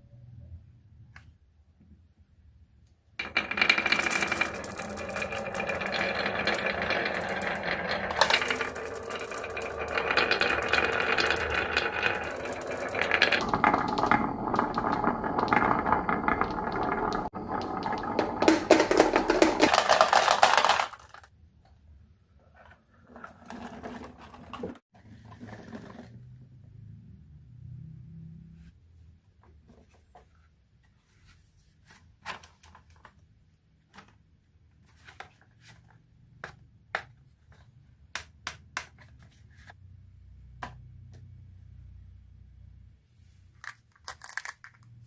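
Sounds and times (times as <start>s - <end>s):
marbles rolling down a track: 3.2s - 21.3s, 43.6s - 45.0s.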